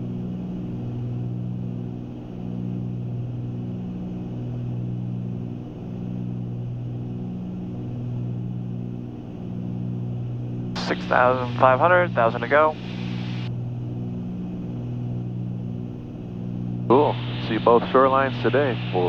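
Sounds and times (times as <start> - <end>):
twin propeller engines droning: 5.0 - 19.0.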